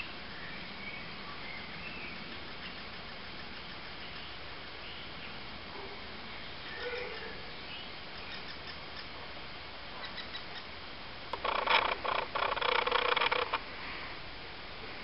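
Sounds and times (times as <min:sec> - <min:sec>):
faint bird chirps: 0:06.4 - 0:09.2, 0:10.0 - 0:10.7
harsh rasping sound: 0:11.4 - 0:13.6.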